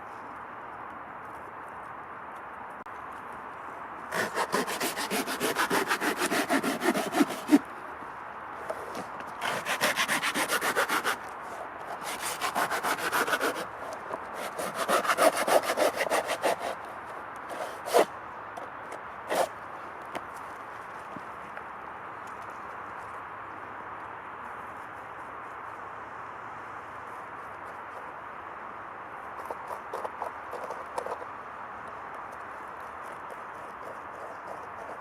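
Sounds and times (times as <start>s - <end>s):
saw cutting through wood: 4.1s - 7.7s, 9.4s - 11.2s, 11.9s - 16.9s, 17.5s - 18.1s, 19.3s - 19.5s.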